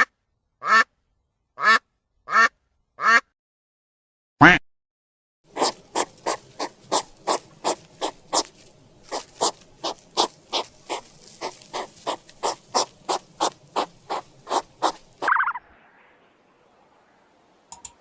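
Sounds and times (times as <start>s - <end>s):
animal squeaking chirps: 5.5s - 8.5s, 9.1s - 15.6s.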